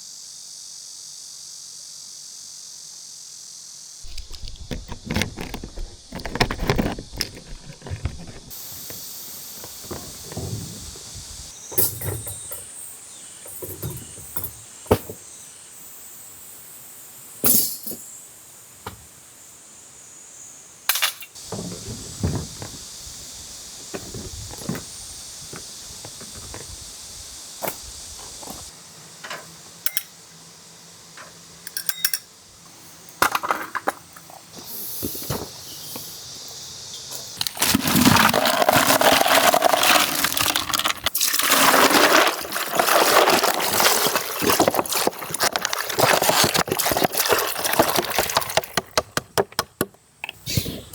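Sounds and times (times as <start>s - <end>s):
steady high hiss: 8.5s - 38.2s
water splashing and pouring: 37.4s - 48.9s.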